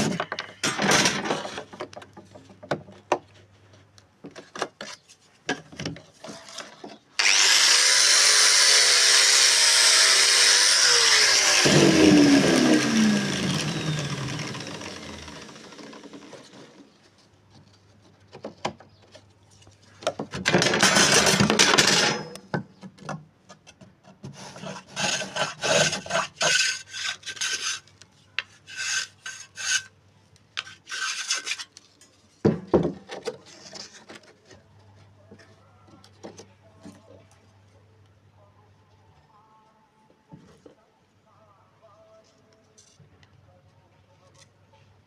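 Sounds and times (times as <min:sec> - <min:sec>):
hand tool rasping wood: 0:07.2 - 0:16.7, 0:24.3 - 0:27.8, 0:30.6 - 0:31.6
power tool winding down: 0:07.2 - 0:16.8.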